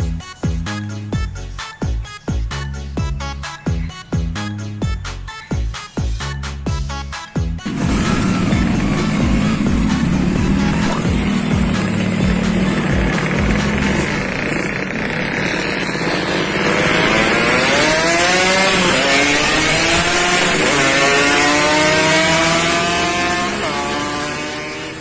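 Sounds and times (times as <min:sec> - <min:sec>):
motorcycle accelerating through gears: 0:07.6 - 0:25.0.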